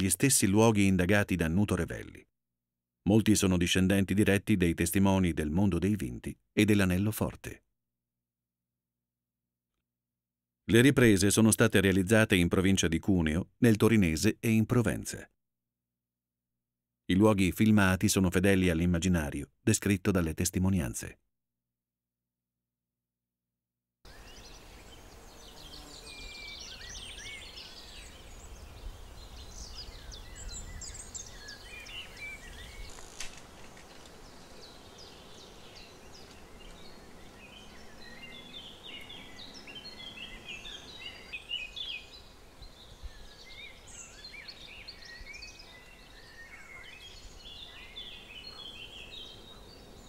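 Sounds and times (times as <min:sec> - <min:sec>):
songbirds chirping: 0:00.0 - 0:02.2, 0:03.0 - 0:07.6, 0:24.1 - 0:50.0
faint outdoor ambience: 0:24.1 - 0:50.0.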